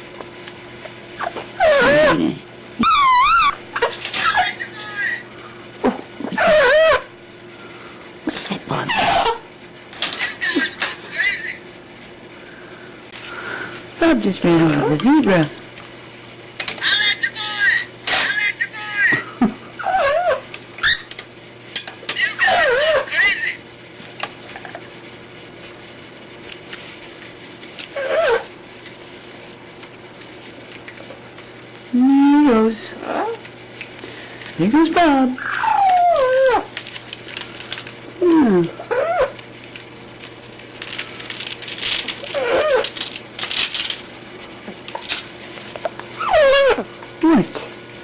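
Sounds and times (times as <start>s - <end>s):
parrot call: 1.6s - 2.2s, 2.8s - 4.6s, 6.3s - 7.1s, 19.8s - 21.1s, 22.2s - 23.4s, 28.0s - 28.4s, 35.4s - 36.7s, 38.8s - 39.4s, 42.2s - 42.8s, 46.2s - 46.9s
parrot rattling a toy: 40.7s - 44.1s.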